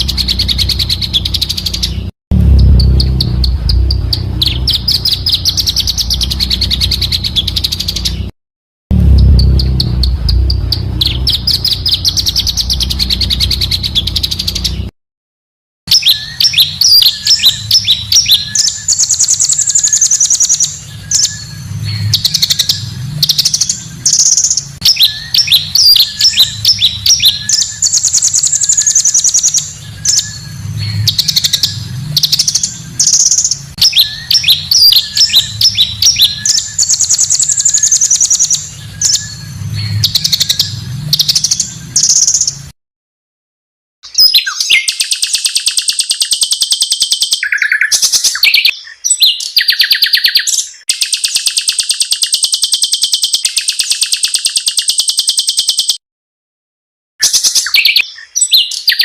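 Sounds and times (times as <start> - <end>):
songbirds chirping and trilling: 0.0 - 8.3, 8.9 - 14.9, 15.9 - 42.7, 44.0 - 56.0, 57.2 - 59.0.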